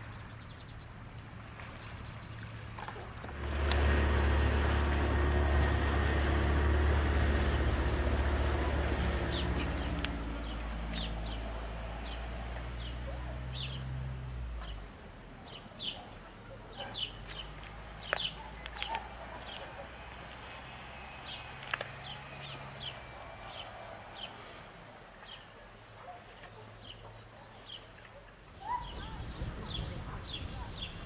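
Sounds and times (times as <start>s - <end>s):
bird chirping: 14.6s - 24.6s, 28.6s - 31.0s.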